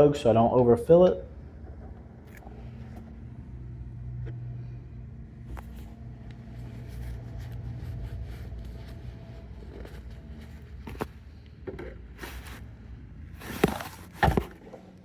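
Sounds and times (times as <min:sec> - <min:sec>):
low engine-like hum: 0:00.0 - 0:15.0
plastic jugs knocking: 0:13.4 - 0:14.6.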